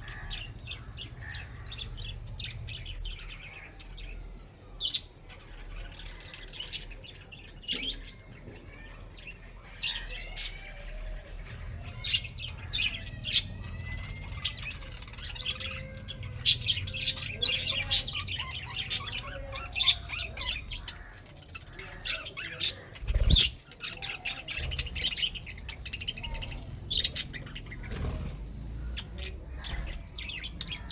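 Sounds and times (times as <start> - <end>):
budgerigars chattering: 11.6 - 30.9.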